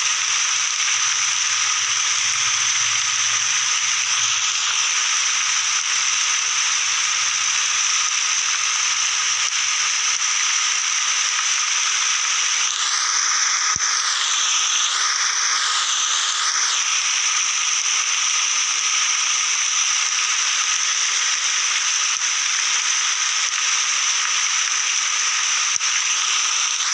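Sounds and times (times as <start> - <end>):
high-pitched drone: 0.0 - 10.1
steady rain hiss: 0.0 - 26.9.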